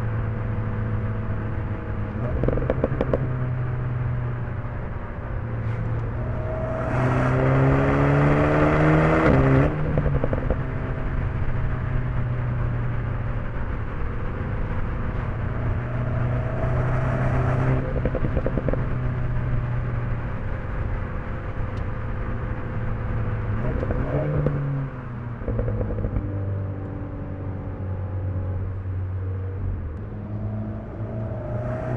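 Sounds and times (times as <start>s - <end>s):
car engine accelerating: 0.0s - 31.9s
exhaust pops: 2.2s - 3.3s.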